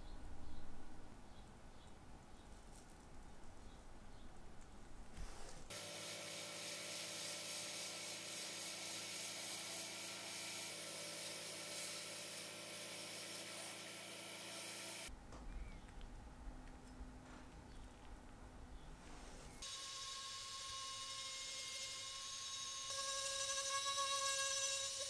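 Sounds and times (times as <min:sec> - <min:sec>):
sandblaster hissing: 0:05.7 - 0:15.1.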